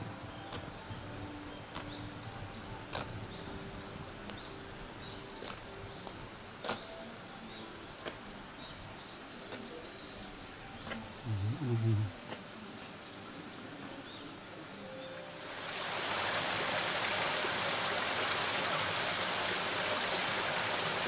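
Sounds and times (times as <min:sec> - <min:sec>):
small birds chirping: 0:00.0 - 0:15.4.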